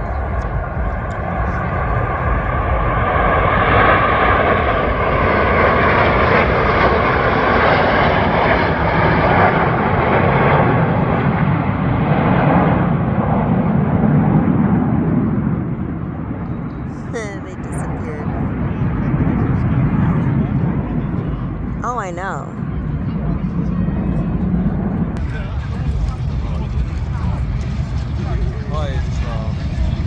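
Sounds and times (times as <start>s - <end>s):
jet roar passing overhead: 0.0s - 16.3s, 23.8s - 30.0s.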